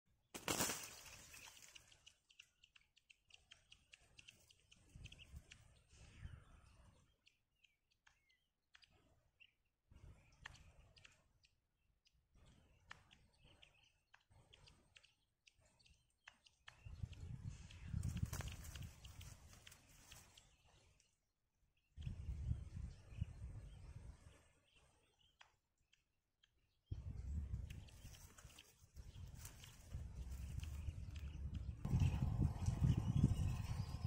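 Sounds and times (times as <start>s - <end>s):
faint bird chirps: 0.6s - 25.6s.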